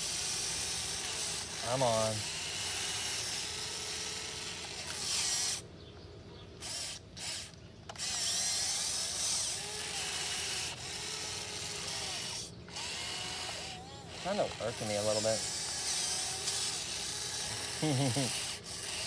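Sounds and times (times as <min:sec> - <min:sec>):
electric motors and gears whining: 0:00.0 - 0:05.7, 0:06.6 - 0:19.0.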